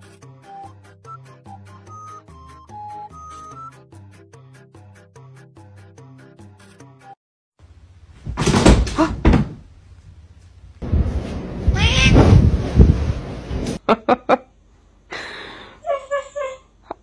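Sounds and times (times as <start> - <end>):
cat meowing loudly: 11.8 - 12.2.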